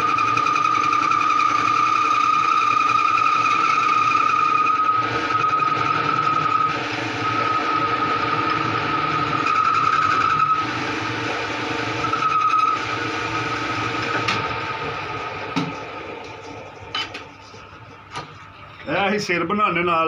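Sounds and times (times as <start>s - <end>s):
cutting tool squealing: 0.0s - 14.7s
lathe machine hum: 0.0s - 18.9s.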